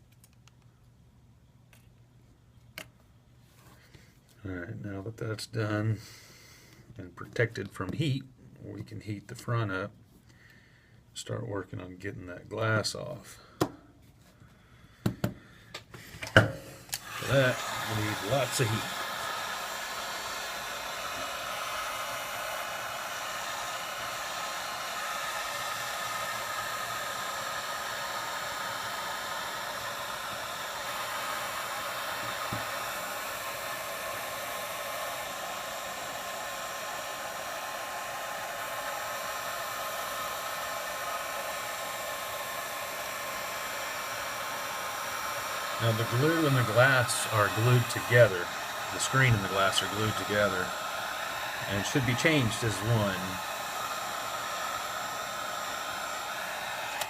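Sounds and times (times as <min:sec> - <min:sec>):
hot-air blower running: 0:15.0 - 0:57.0.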